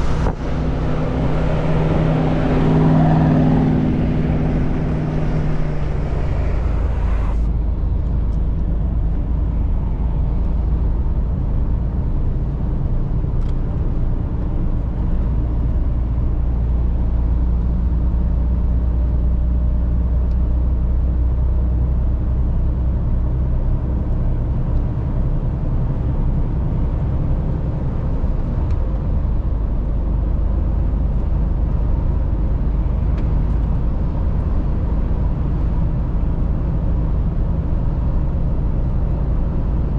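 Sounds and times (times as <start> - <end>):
truck engine and road rumble: 0.0 - 39.9.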